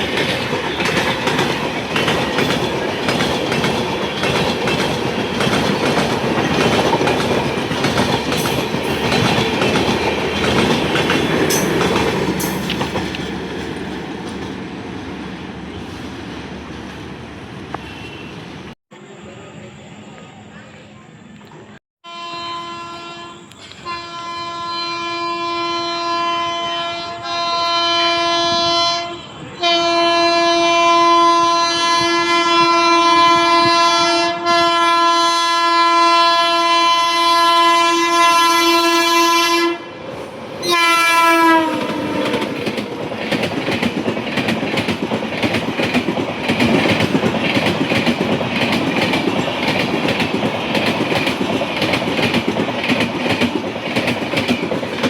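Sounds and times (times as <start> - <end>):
train wheels clattering over rails: 0.0 - 14.6, 41.6 - 55.0
locomotive horn blasts: 17.8 - 18.4, 22.0 - 40.0, 40.6 - 42.5.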